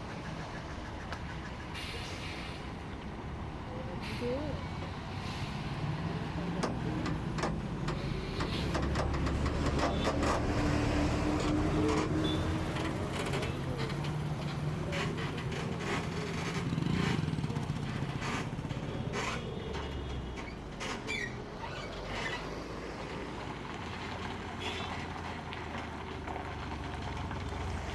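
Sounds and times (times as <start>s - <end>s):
lorry diesel engine running: 0.0s - 20.8s.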